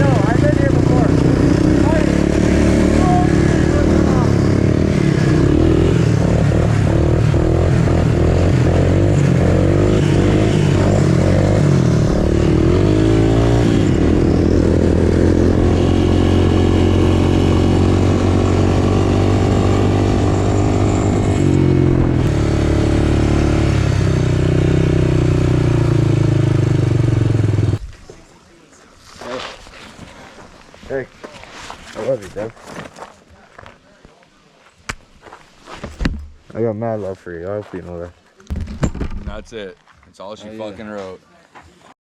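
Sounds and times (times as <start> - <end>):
motorcycle engine revving: 0.0 - 27.8.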